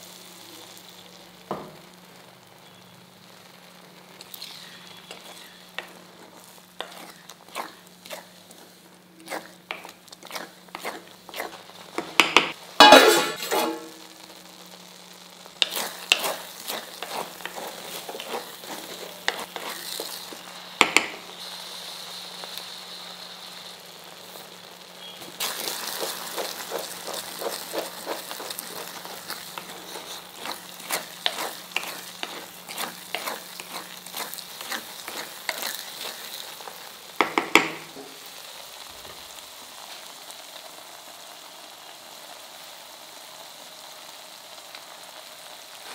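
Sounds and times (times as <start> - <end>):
corn and milk sizzling: 0.0 - 45.9
spatula scraping a pan: 4.2 - 14.1, 15.6 - 21.3, 25.0 - 37.8.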